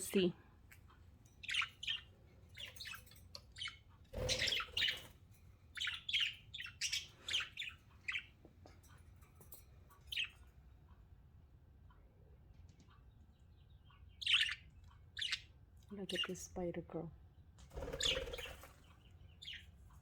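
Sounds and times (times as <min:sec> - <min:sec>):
budgerigars chirping: 0:01.4 - 0:05.2, 0:05.8 - 0:08.4, 0:10.1 - 0:10.4, 0:13.6 - 0:16.4, 0:17.8 - 0:19.7.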